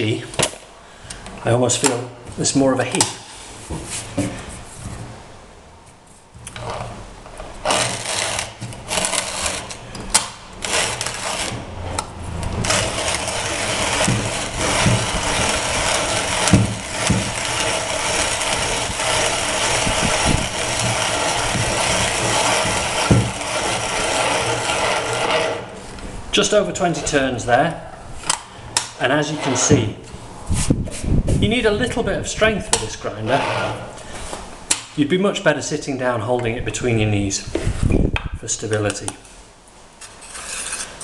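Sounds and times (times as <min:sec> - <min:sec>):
hand coffee grinder grinding beans: 0:07.6 - 0:26.0.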